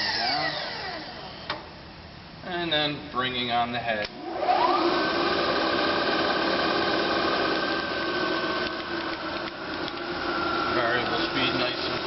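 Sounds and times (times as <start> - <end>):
milling spindle whine and hum: 0.0 - 1.8, 4.2 - 12.0.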